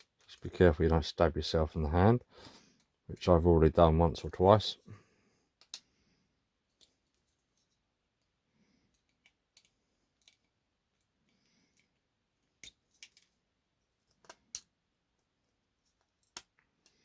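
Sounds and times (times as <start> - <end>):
small sharp plastic clicks: 5.6 - 6.0, 8.2 - 13.4, 14.0 - 15.3, 15.9 - 17.0.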